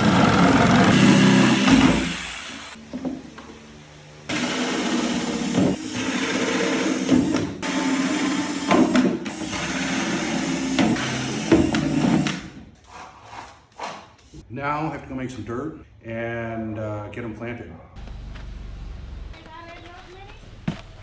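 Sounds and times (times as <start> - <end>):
power tool on plastic: 0.0 - 2.8, 4.3 - 12.4.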